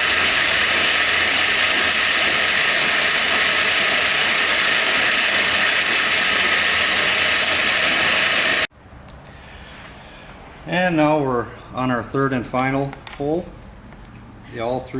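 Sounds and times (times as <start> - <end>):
milling machine cutting: 0.0 - 8.7.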